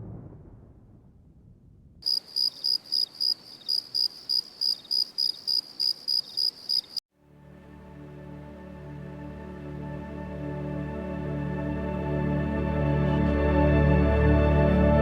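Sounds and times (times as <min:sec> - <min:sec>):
cricket chirping: 0:02.0 - 0:07.0.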